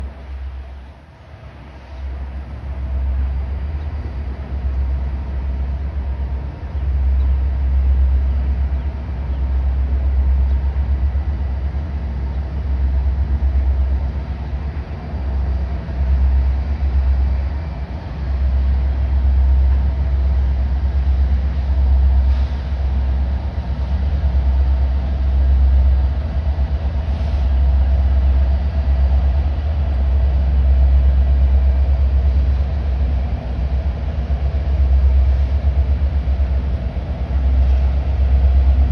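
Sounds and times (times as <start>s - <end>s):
freight train rumbling over bridge: 0.0s - 38.9s.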